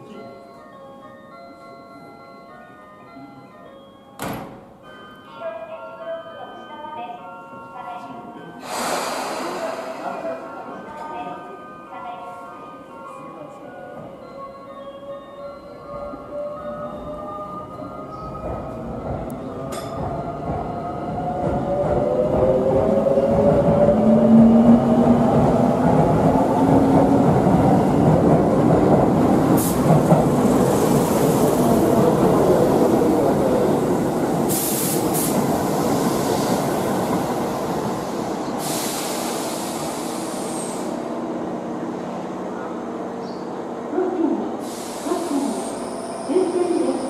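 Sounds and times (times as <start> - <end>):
short hisses: 8.6 - 10.1
train wheels rumbling on rails: 16.8 - 47.0.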